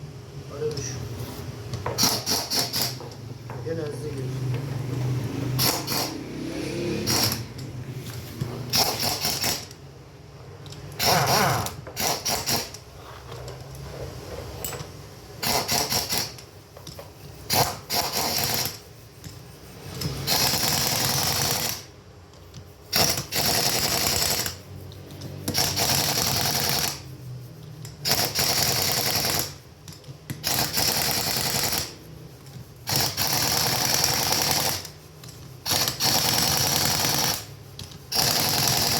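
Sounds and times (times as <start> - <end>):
power tool in short bursts: 5.6 - 7.5, 11.0 - 12.7.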